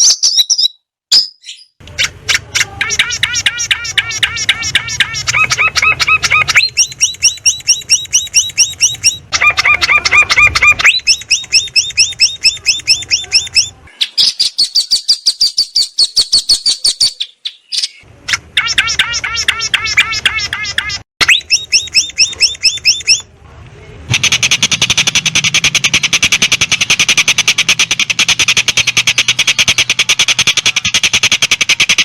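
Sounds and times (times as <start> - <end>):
bird singing whistled notes: 0.0 - 1.8, 3.0 - 9.3, 10.0 - 18.0, 21.2 - 23.2.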